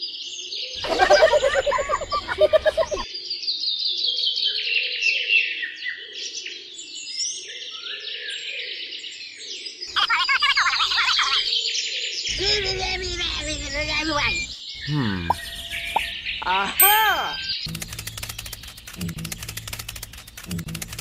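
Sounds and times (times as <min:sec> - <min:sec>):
small birds chirping: 0:00.7 - 0:03.2, 0:10.8 - 0:21.0.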